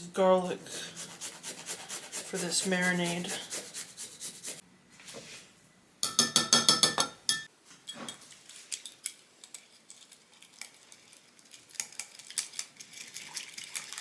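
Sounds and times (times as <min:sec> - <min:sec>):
utensil clinking against a bowl: 0:06.0 - 0:08.2.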